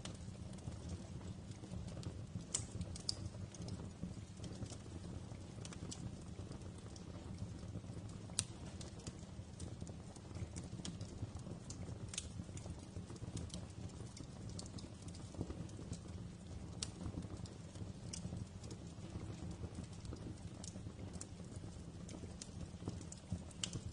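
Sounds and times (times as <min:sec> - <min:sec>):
wood fire crackling: 0:00.0 - 0:23.9.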